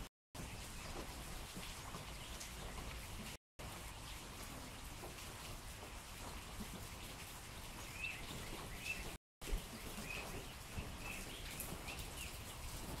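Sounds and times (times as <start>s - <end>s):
rain pattering on a roof: 0.0s - 13.0s
bird chirping: 7.8s - 12.6s.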